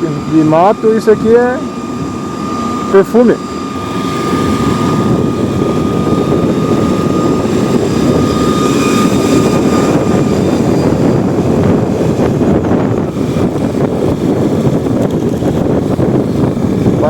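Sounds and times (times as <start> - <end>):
thin whine: 0.0 - 17.0
vehicle engine and wind rumble: 0.0 - 17.0.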